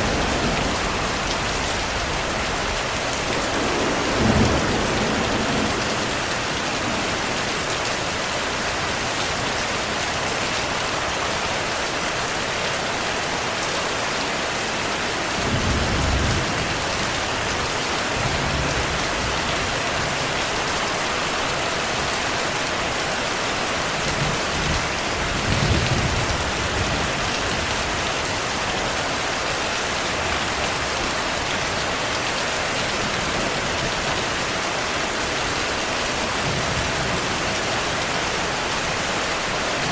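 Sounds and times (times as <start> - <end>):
distant thunder rumbles: 0.0 - 7.6
heavy rain: 0.0 - 39.9.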